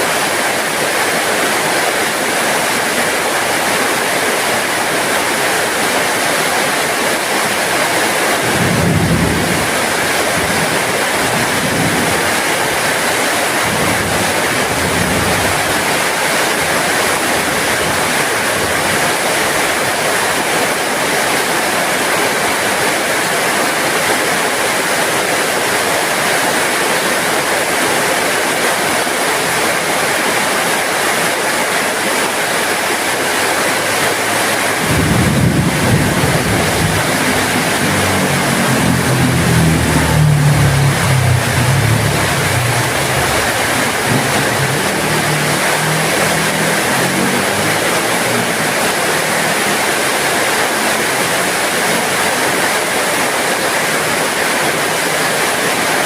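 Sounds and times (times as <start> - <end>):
heavy rain falling: 0.0 - 56.0
low rumbles: 34.5 - 49.1.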